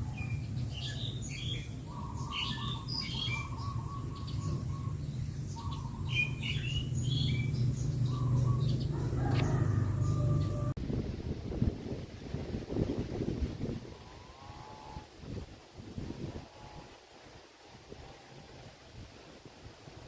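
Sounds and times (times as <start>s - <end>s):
small birds chirping: 0.0s - 10.7s
steady low rumble: 0.0s - 14.0s.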